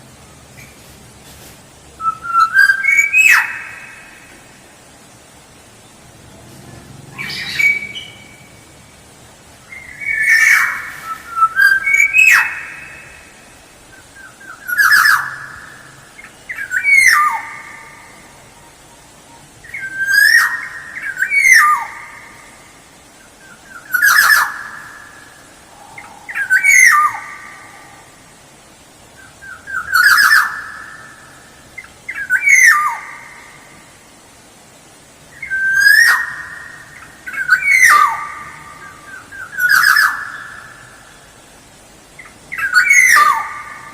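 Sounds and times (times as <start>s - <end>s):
oriole fluty whistled call: 2.0s - 4.2s, 7.1s - 8.6s, 9.7s - 13.3s, 14.2s - 15.8s, 16.4s - 18.1s, 19.6s - 22.1s, 23.4s - 24.8s, 26.0s - 28.0s, 29.2s - 31.2s, 32.1s - 33.4s, 35.3s - 41.2s, 42.5s - 43.9s.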